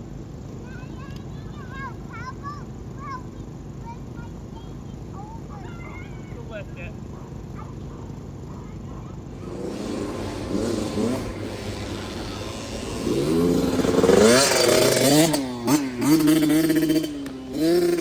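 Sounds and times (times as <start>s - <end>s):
motocross bike engine revving: 6.9s - 18.0s.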